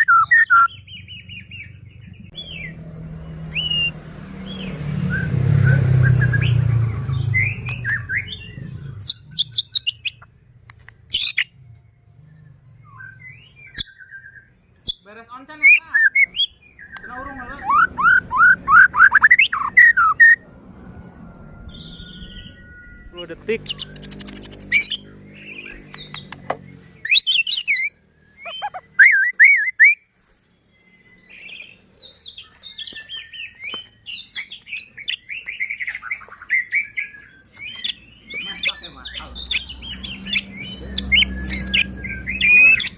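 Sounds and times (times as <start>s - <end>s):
songbird whistling and chirping: 0.0s - 20.4s, 21.0s - 42.9s
loud low hum: 20.0s - 27.0s.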